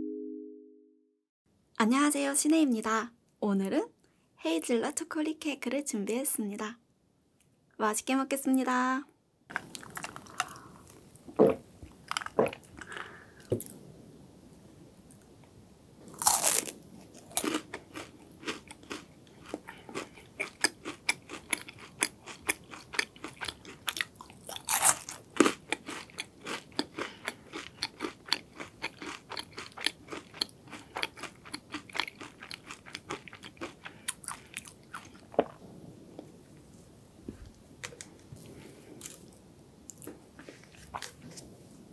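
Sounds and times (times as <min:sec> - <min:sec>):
crunchy chocolate eating: 0:09.5 - 0:13.2, 0:16.1 - 0:35.6.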